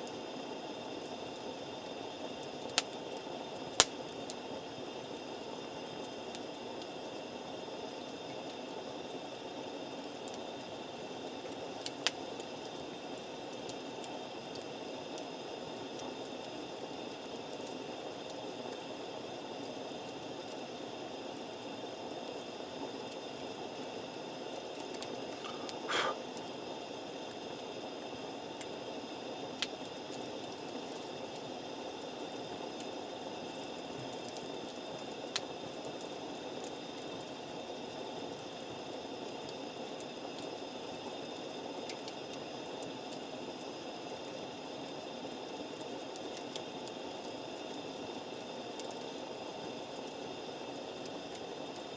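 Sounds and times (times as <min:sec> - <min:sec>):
campfire pops: 0:02.5 - 0:03.0, 0:03.7 - 0:04.0, 0:11.8 - 0:12.5, 0:24.7 - 0:26.5.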